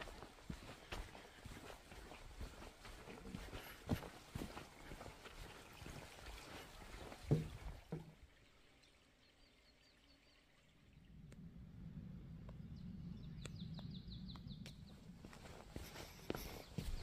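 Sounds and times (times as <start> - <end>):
faint low rumble: 10.6 - 17.0
small bird chirping: 12.4 - 17.0.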